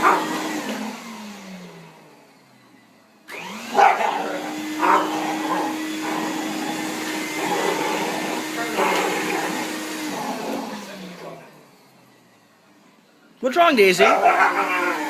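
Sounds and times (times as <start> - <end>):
dog barking: 0.0 - 0.5, 3.7 - 6.4, 14.0 - 15.0
vacuum cleaner motor: 0.0 - 12.7, 14.0 - 15.0.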